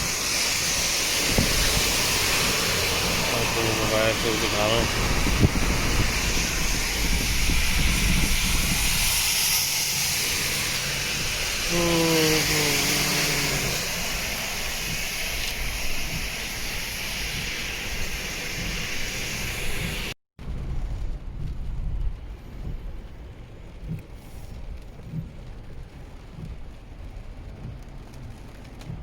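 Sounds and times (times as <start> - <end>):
rain and tyre spray hiss: 0.0 - 29.0.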